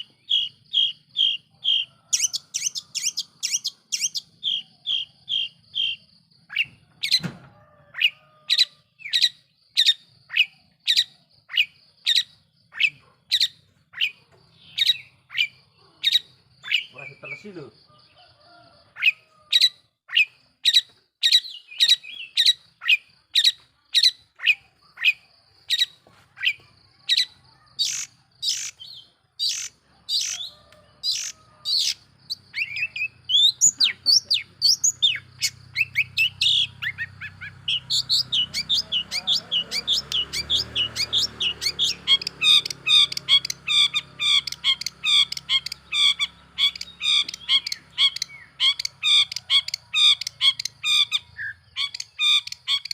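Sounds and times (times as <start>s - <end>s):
shrike harsh calls and chattering: 0.0s - 7.2s, 19.0s - 52.9s.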